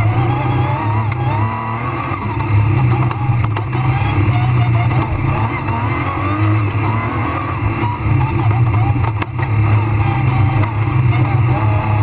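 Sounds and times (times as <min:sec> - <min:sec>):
rally car engine under load: 0:00.0 - 0:12.0.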